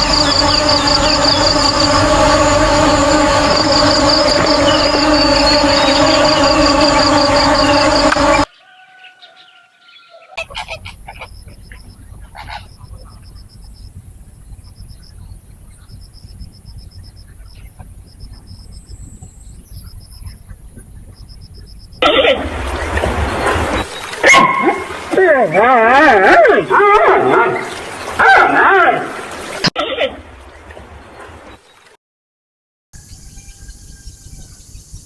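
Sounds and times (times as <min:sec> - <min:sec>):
waterfowl honking: 0:00.0 - 0:13.6, 0:19.8 - 0:30.1.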